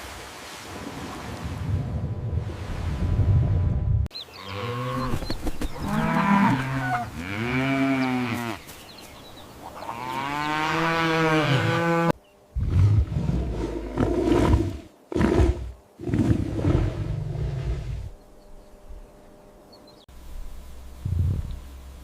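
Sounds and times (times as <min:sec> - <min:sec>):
cow mooing: 0:05.8 - 0:08.6, 0:09.8 - 0:12.1
low rumbling noise: 0:20.2 - 0:22.0.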